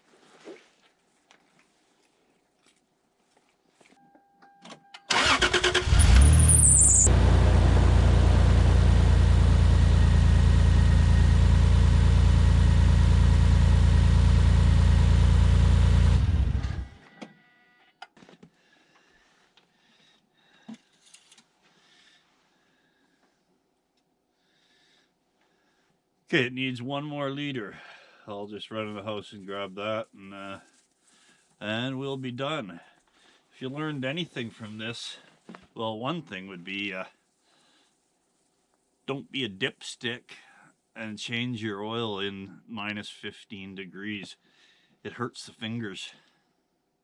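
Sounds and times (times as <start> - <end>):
engine starter cranking: 5.1 - 7.2
engine idling: 5.1 - 17.0.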